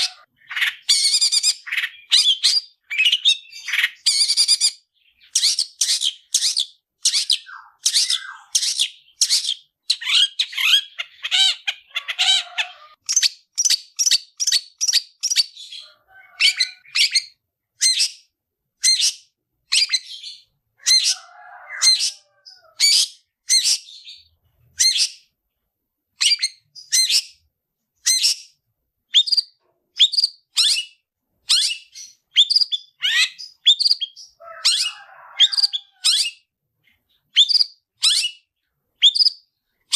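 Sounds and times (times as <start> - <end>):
soft bird chirps: 0.0 - 39.9.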